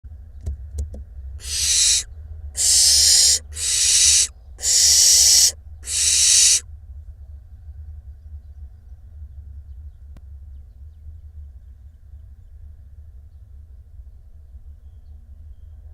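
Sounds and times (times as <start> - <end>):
owl chicks hissing calls: 1.4 - 6.6
steady low hum: 1.4 - 6.6.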